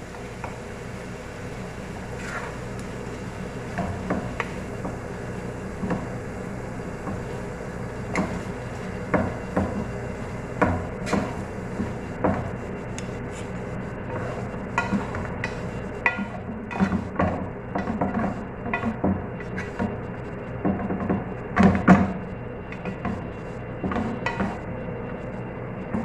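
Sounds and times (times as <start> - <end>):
steady low hum: 0.0 - 26.0
utensil scraping a cooking pan: 1.5 - 6.2, 6.9 - 20.0.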